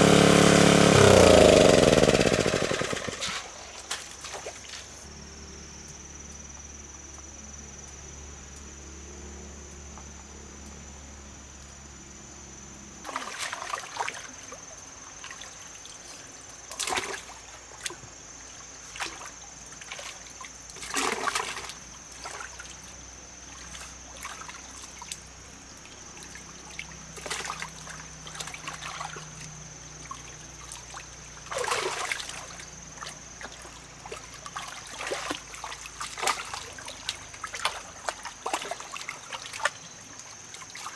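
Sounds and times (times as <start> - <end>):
low motor hum: 0.0 - 3.6
water splashing and trickling: 13.1 - 40.9.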